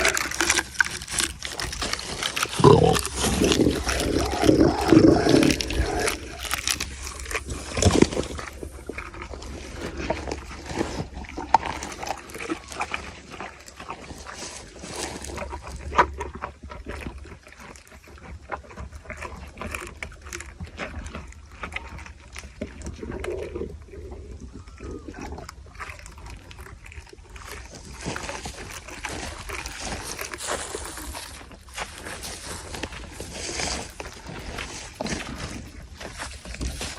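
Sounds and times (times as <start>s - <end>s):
camel crunching and chewing: 0.0s - 36.9s
low animal groan: 2.4s - 10.8s.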